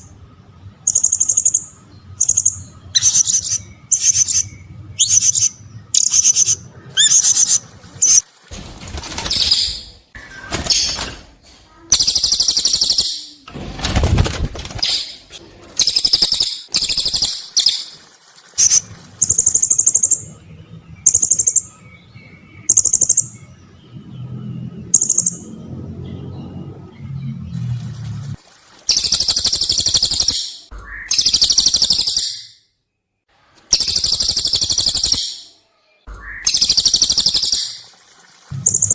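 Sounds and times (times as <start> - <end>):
high trilled bird chirps: 0.8 - 8.2, 11.9 - 13.4, 14.8 - 20.3, 28.9 - 32.8, 33.7 - 37.9
shrill bird trills: 0.8 - 8.2, 28.9 - 32.7, 33.7 - 37.9
low hum: 18.0 - 28.7.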